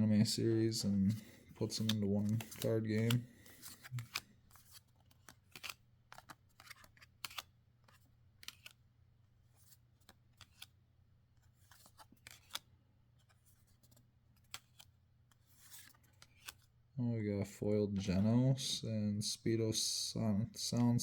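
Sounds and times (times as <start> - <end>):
cards clicking and rustling: 0.5 - 10.8, 11.4 - 16.8.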